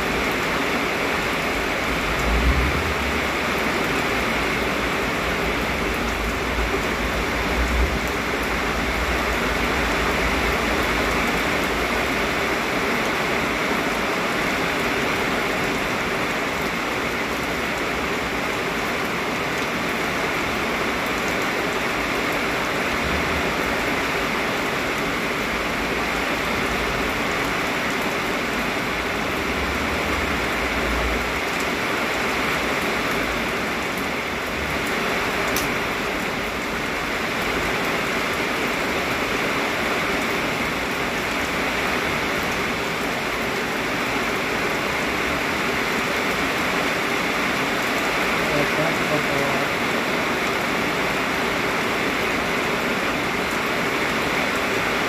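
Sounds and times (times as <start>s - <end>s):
low wind rumbles: 0.0s - 14.0s
heavy rain pouring: 0.0s - 55.0s.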